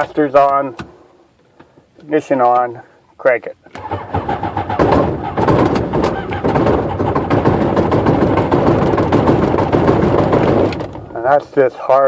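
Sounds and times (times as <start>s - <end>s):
aircraft engine starter cranking: 3.7s - 11.2s.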